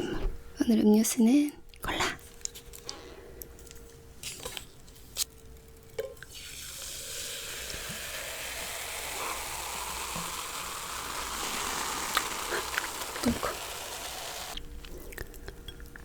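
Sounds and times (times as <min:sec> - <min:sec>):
cola fizzing: 0:06.2 - 0:14.6.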